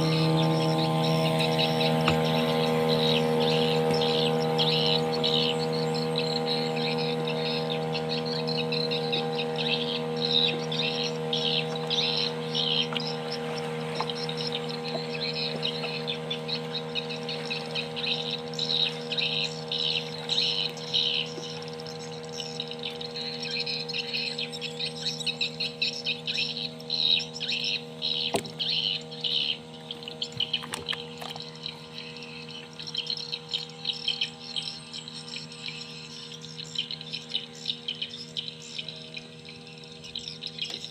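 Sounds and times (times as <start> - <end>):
birds chirping in trills: 0.0 - 40.9
steady low hum: 0.0 - 40.9.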